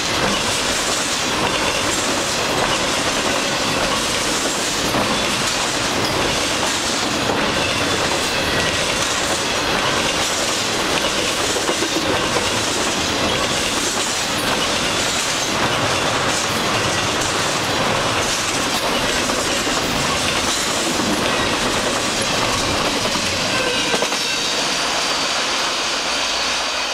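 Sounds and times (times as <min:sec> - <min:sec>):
wheels clicking over rail joints: 0:00.0 - 0:24.4
freight train rumbling: 0:00.0 - 0:26.9.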